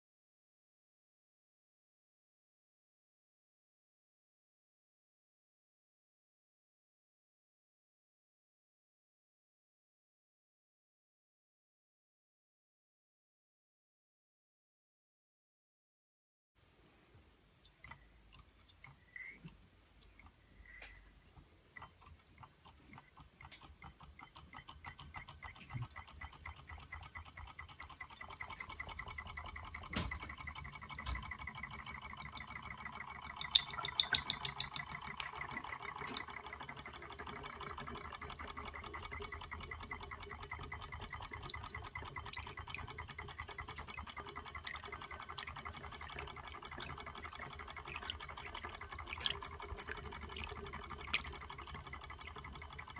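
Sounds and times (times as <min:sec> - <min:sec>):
model engine clicking: 0:17.6 - 0:52.9.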